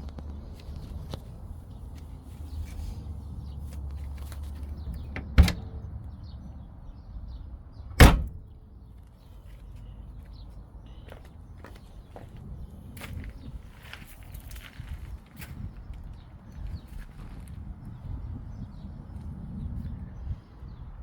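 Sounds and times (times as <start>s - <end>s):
sharp bangs: 8.0s - 8.5s.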